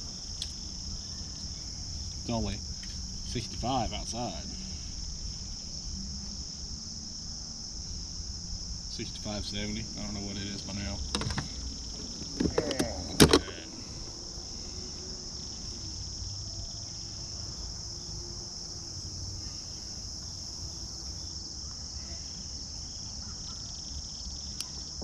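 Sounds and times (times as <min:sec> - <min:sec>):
insects chorus: 0:00.0 - 0:25.0
sharp knocks and clicks: 0:11.1 - 0:13.6.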